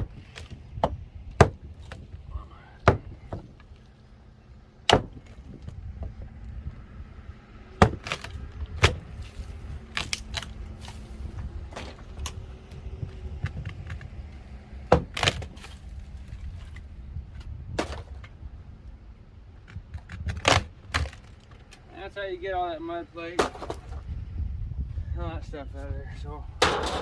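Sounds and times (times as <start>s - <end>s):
wood knocking and cracking: 0.0s - 2.2s, 2.8s - 3.9s, 4.9s - 6.3s, 7.8s - 9.1s, 14.9s - 15.8s, 17.4s - 18.3s, 19.6s - 21.8s
steady low rumble: 0.0s - 22.4s, 23.7s - 27.0s.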